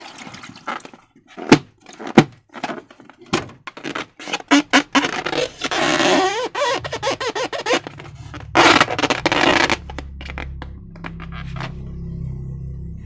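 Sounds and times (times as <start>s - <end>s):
balloons tapping and crackling: 0.5s - 11.7s
balloon squeak: 3.7s - 11.8s.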